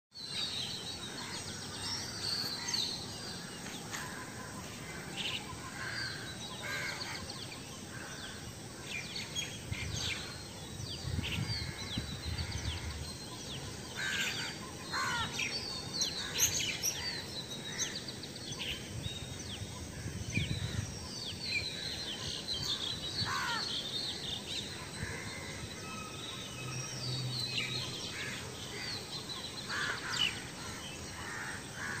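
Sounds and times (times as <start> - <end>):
birds chirping and calling: 0.2 - 32.0
steady background hiss: 0.2 - 32.0
birds cawing: 1.0 - 9.0, 13.9 - 18.2, 21.8 - 26.2, 28.0 - 32.0.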